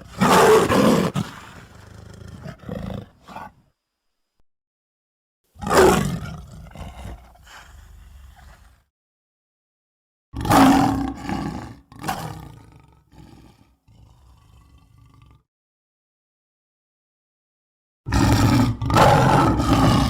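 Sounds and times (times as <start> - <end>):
monster roaring: 18.1 - 20.0.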